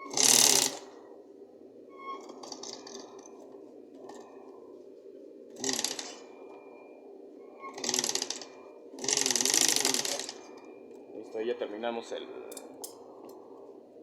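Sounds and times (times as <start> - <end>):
low steady hum: 0.0 - 14.0
sewing machine stitching: 0.1 - 0.8, 5.6 - 6.2, 7.8 - 10.4.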